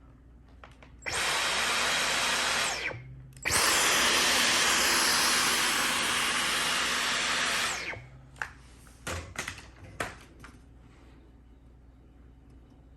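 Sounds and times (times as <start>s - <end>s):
cordless vacuum running: 1.1s - 8.1s.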